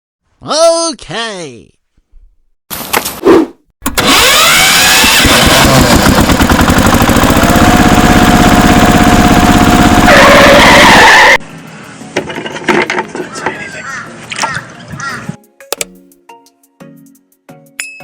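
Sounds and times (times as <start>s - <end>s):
small engine running: 3.8s - 11.4s.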